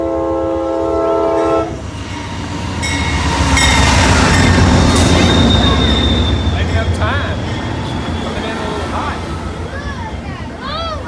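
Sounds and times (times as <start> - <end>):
train horn chord: 0.0 - 1.8
train rumble: 0.0 - 11.0
high metallic squeal: 2.0 - 9.1.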